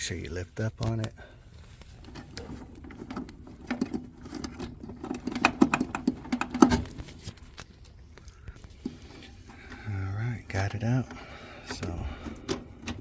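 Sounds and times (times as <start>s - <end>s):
faint steady hum: 0.0s - 13.0s
metallic clicking and rattling: 2.0s - 8.3s.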